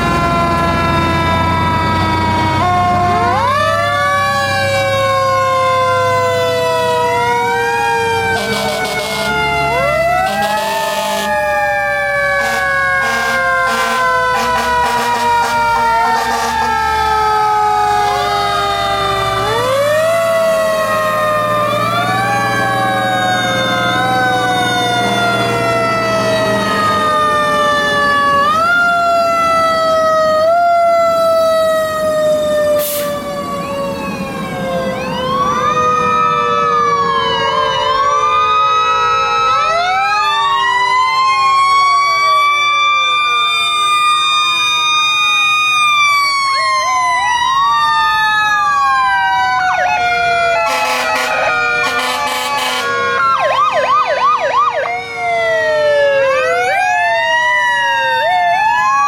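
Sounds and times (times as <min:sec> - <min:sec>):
truck engine rumbling: 0:00.0 - 0:37.8
fire truck sirens wailing: 0:00.0 - 0:59.0.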